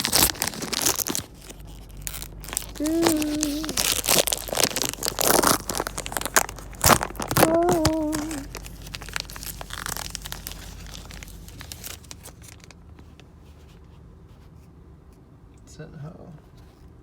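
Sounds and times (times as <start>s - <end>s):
foil pack crinkling and tearing: 0.0s - 12.9s
person humming: 2.6s - 4.7s, 7.2s - 8.6s.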